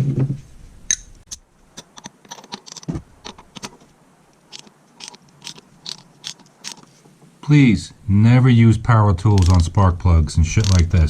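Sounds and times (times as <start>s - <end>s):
ratchet clicking: 4.5s - 6.8s, 9.4s - 9.6s.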